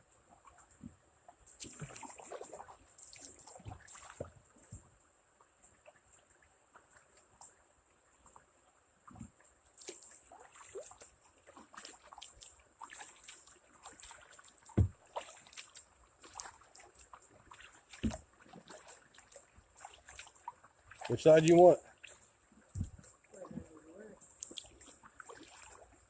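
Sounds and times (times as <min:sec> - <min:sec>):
paddle strokes splashing: 0:01.6 - 0:04.8, 0:09.2 - 0:26.0
dull thumps against kayak: 0:14.7 - 0:15.0, 0:18.0 - 0:18.2, 0:22.7 - 0:23.7.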